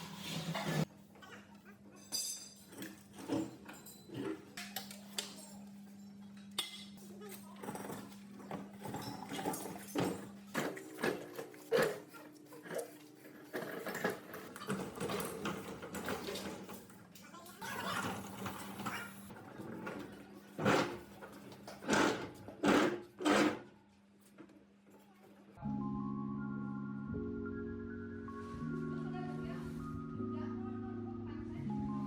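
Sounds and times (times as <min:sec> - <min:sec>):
metal tools clinking and knocking: 0:01.9 - 0:11.2.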